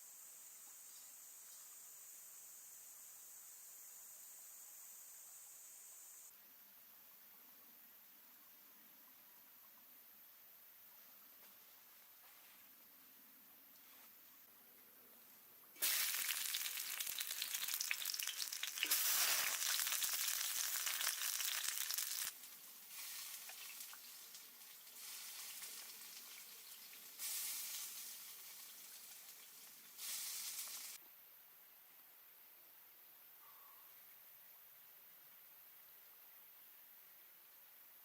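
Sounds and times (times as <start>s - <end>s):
food frying sizzle: 15.8s - 31.0s.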